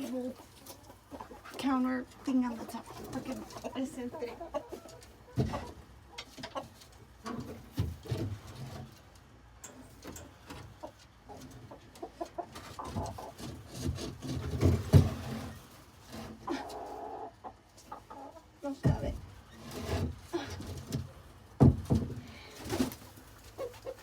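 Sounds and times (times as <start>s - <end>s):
chickens clucking: 0.0s - 24.0s
cabinet knocking and bumping: 21.6s - 22.2s.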